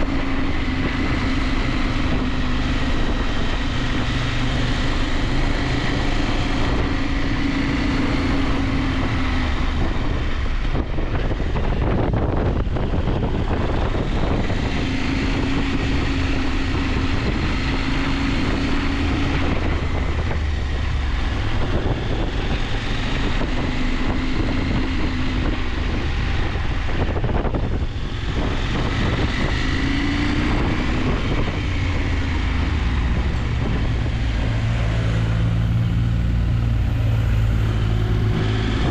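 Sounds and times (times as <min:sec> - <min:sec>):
motorcycle engine revving: 0:00.0 - 0:38.9
wind rush: 0:00.0 - 0:38.9.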